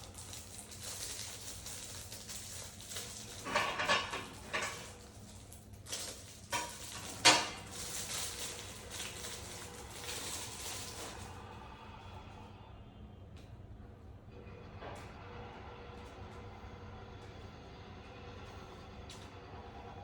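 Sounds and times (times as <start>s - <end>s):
coffee utensils clinking: 0.0s - 11.3s.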